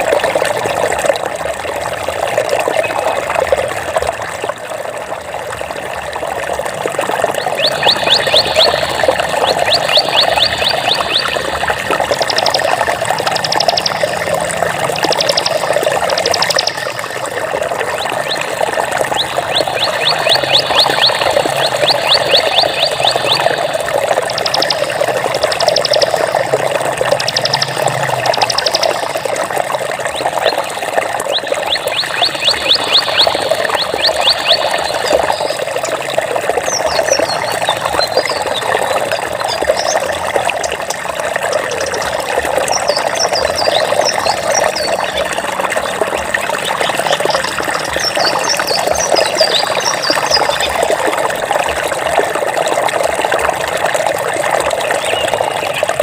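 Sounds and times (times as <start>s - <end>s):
stream water flowing: 0.0s - 56.0s
high chirping calls: 7.4s - 17.3s, 18.0s - 26.5s, 27.1s - 29.4s, 31.2s - 35.8s, 36.6s - 40.1s, 41.5s - 45.3s, 46.7s - 50.8s.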